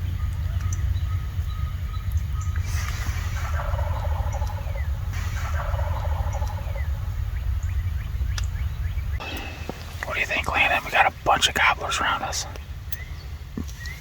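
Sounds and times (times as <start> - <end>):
low rumble: 0.0 - 14.0
turkeys gobbling: 2.0 - 11.0.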